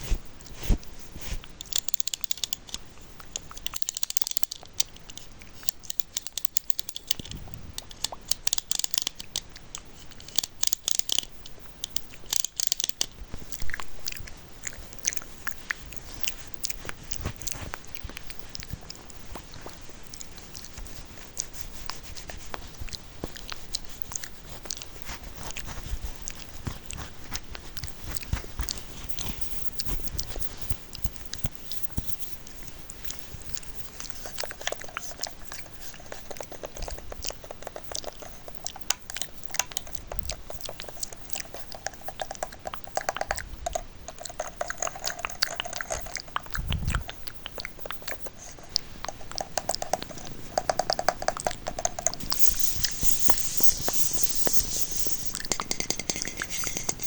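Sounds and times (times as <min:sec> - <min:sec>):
small clicks and crackles: 0:00.0 - 0:57.0
quick hollow ticking: 0:49.1 - 0:57.0.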